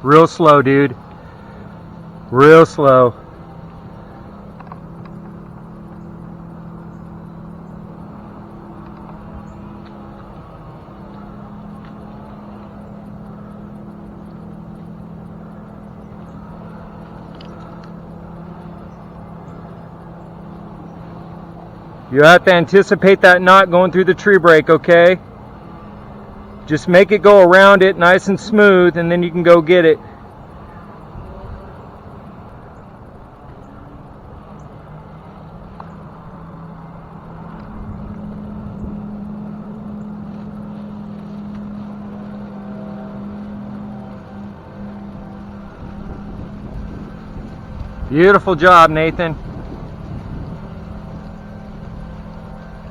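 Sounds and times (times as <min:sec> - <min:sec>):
engine humming steadily: 0:00.0 - 0:52.9
wind rumbling on microphone: 0:35.9 - 0:41.5, 0:44.8 - 0:52.9.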